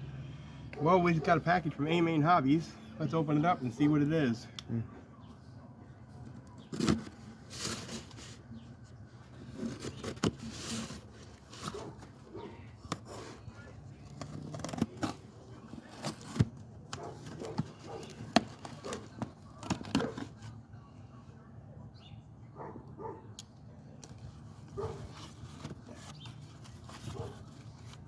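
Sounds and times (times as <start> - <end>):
cardboard scraping and rustling: 6.5 - 20.6, 24.3 - 28.0.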